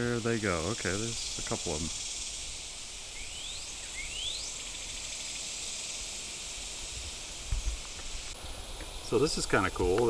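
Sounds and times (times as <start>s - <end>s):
insect chorus hiss: 0.0s - 10.0s
bird whistled rising notes: 1.0s - 8.0s.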